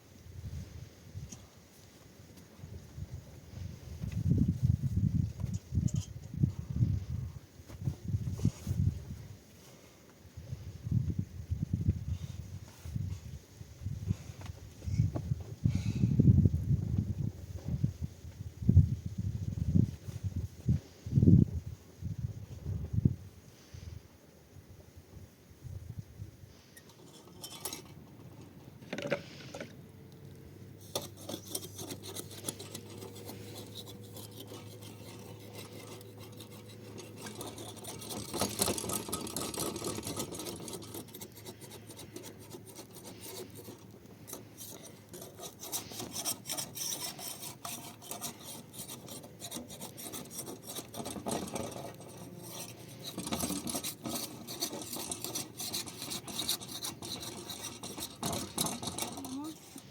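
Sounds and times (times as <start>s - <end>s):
hand scraping and rubbing: 7.7s - 9.8s, 26.5s - 29.8s, 30.7s - 59.9s.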